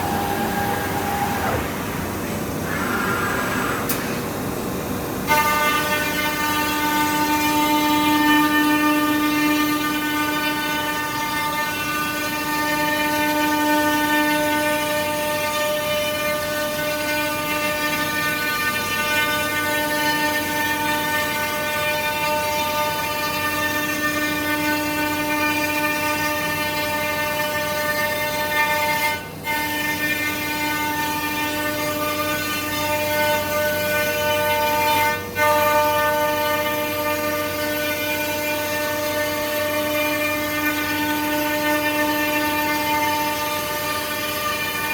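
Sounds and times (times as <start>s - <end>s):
woodworking machine whining: 0.0s - 4.5s.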